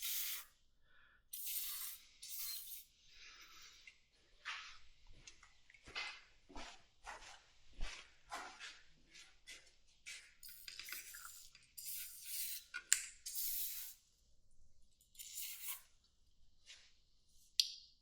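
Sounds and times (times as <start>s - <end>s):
spray can hissing: 0.0s - 0.5s, 1.4s - 2.8s.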